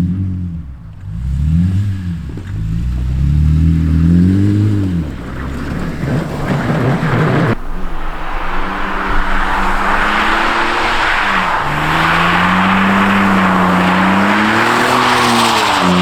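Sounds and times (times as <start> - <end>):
car engine at high revs: 0.0 - 16.0
steady hiss: 7.6 - 15.1.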